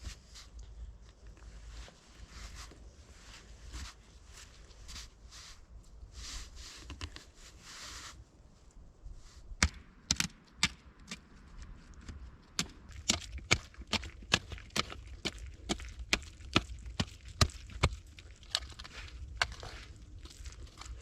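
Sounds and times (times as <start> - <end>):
rustling crunches: 0.0 - 8.3, 11.4 - 21.0
wood being chopped: 9.6 - 11.2, 12.6 - 17.9.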